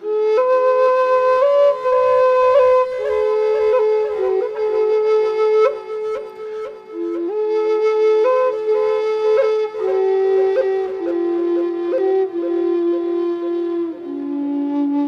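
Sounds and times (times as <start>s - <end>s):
flute playing low melody: 0.0s - 15.0s.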